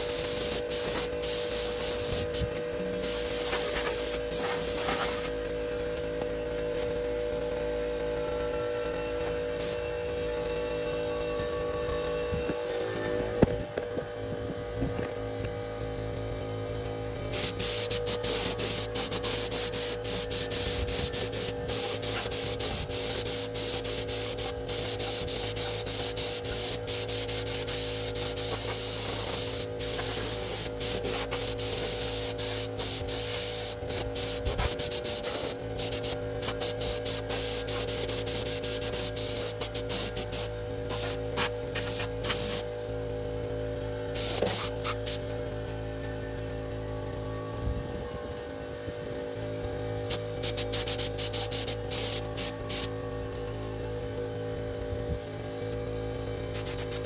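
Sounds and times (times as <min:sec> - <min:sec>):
paint spraying hiss: 0:00.0 - 0:05.3, 0:17.3 - 0:42.7, 0:44.2 - 0:45.3, 0:50.1 - 0:52.9, 0:56.5 - 0:57.0
steady electrical hum: 0:00.0 - 0:57.0.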